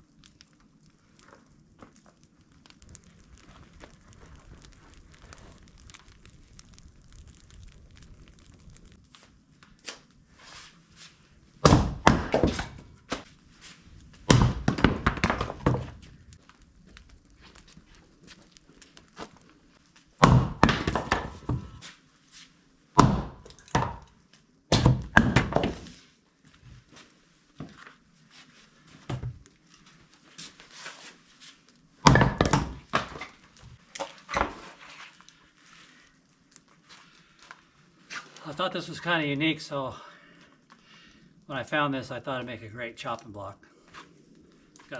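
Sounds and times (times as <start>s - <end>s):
firewood knocking together: 14.2s - 16.1s, 20.2s - 21.8s, 23.0s - 24.1s, 24.7s - 25.9s, 32.0s - 34.8s.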